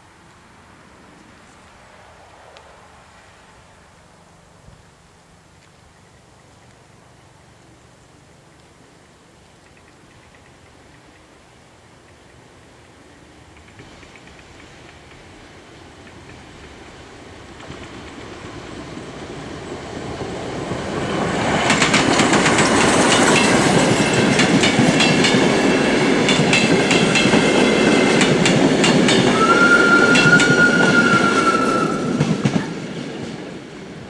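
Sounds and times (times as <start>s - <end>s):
steam train rumble: 12.8s - 34.0s
wheels clicking over rail joints: 13.4s - 34.0s
high wheel squeal: 29.2s - 32.5s.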